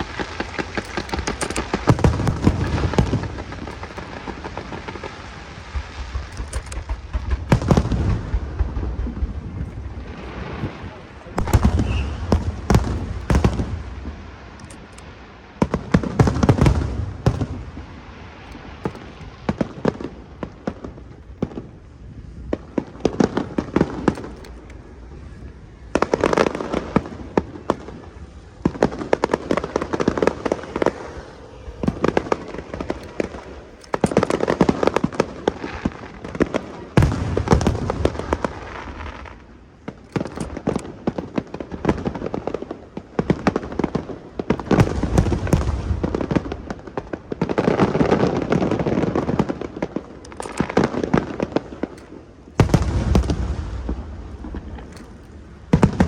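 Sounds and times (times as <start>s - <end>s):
deep firework booms: 0.0s - 14.6s, 15.3s - 56.0s
firework crackling: 0.0s - 56.0s.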